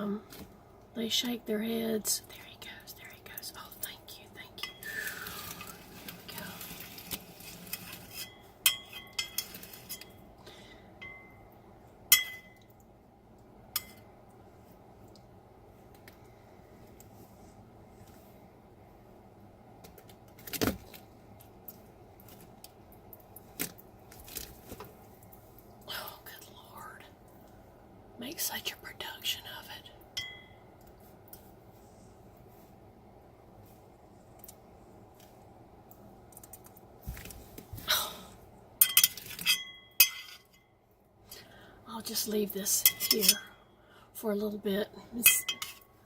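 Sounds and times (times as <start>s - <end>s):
dish clinking: 45.2s - 45.9s.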